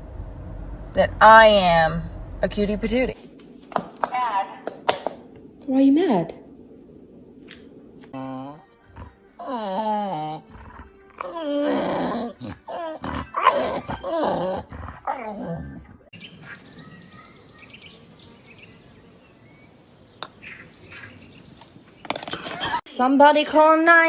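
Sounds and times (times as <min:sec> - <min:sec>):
dog grumbling and whining: 0:08.1 - 0:16.1.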